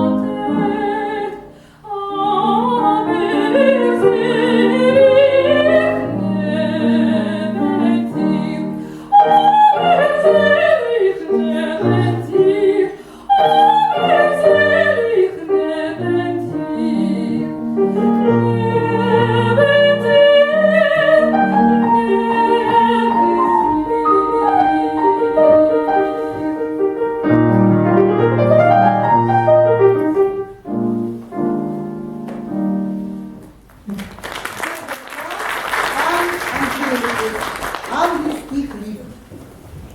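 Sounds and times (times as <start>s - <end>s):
woman singing operatically: 0.0s - 26.5s
grand piano: 0.0s - 39.9s.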